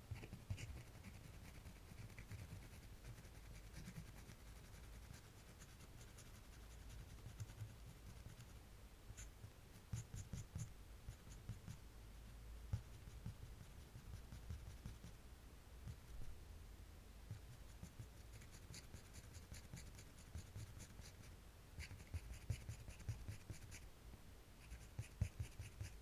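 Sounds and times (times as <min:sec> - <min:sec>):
drawing tool scratching on paper: 0:09.9 - 0:11.8, 0:21.8 - 0:23.8, 0:24.6 - 0:26.0.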